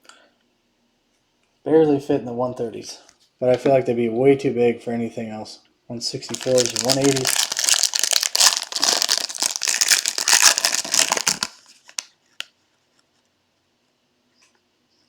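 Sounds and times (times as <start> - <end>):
plastic wrapper crinkling: 6.3 - 12.5.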